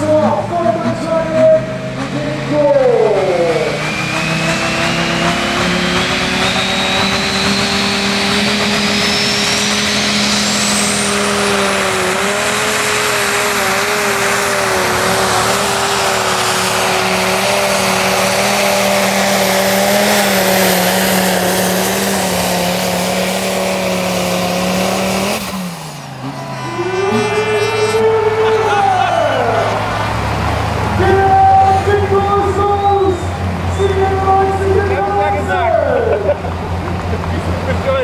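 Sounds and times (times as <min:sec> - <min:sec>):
tractor diesel engine under load: 0:00.0 - 0:38.0
thin high whine rising in pitch: 0:03.2 - 0:12.1.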